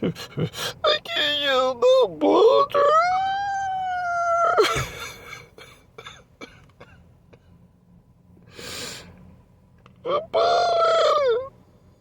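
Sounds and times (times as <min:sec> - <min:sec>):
man sobbing and gasping: 0:00.0 - 0:00.9
man crying wail: 0:02.8 - 0:05.7, 0:10.1 - 0:11.5
sharp noisy breath: 0:08.5 - 0:09.2.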